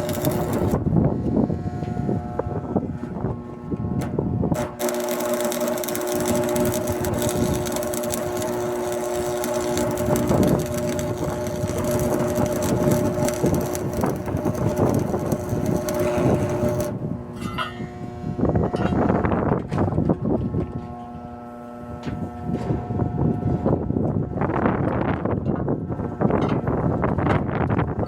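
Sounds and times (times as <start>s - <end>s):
arc welding crackle: 0.0s - 1.4s, 4.5s - 17.0s
welder hum: 0.0s - 19.9s.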